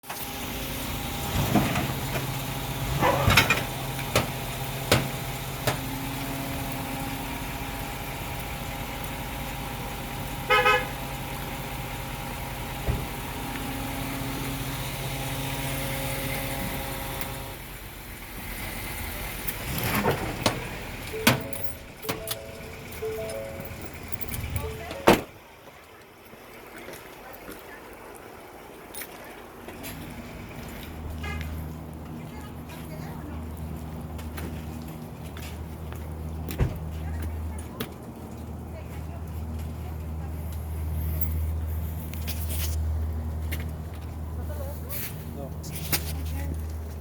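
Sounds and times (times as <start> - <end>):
vehicle engine running: 0.2 - 25.5, 29.9 - 47.0
car horn honk: 10.5 - 11.0.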